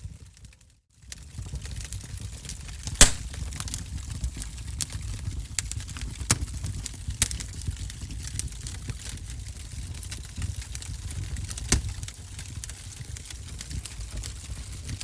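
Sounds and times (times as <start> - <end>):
wood fire crackling: 3.0 - 3.4.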